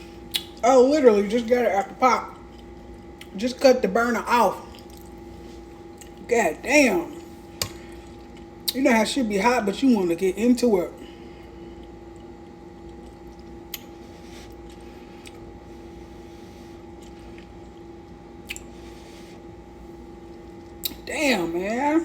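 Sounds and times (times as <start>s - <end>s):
steady hum: 0.0s - 22.0s
person chewing: 0.2s - 0.6s, 2.4s - 3.3s, 4.6s - 6.3s, 11.7s - 15.6s, 16.8s - 19.1s.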